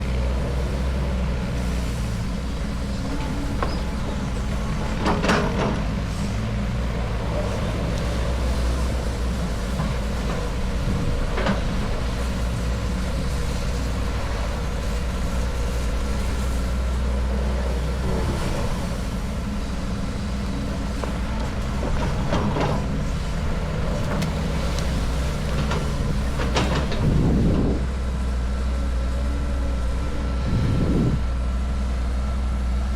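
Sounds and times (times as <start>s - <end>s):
heavy vehicle engine droning: 0.0s - 32.9s.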